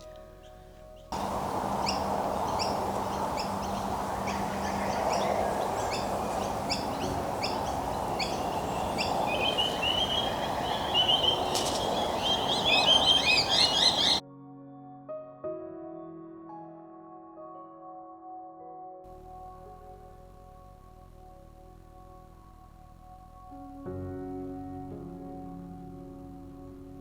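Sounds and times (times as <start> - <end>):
birds chirping: 0.0 - 14.2
bird trilling: 1.2 - 14.2
steady rushing background: 1.2 - 14.2.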